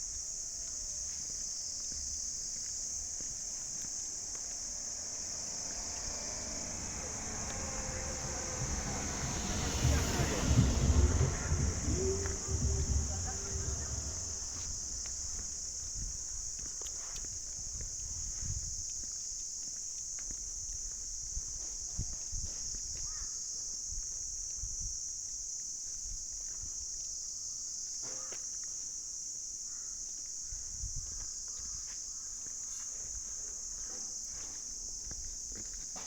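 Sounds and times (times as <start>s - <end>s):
insect chorus drone: 0.0s - 36.0s
low knocks and thumps: 5.6s - 15.7s.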